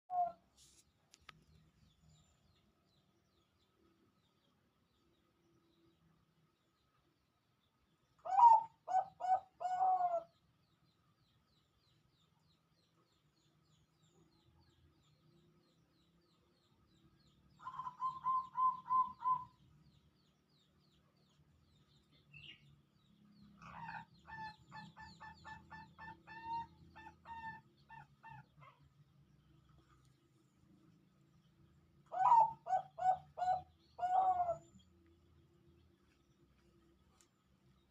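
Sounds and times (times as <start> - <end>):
dove cooing: 0.1 - 0.4, 8.2 - 10.3, 17.6 - 19.6, 32.1 - 34.7.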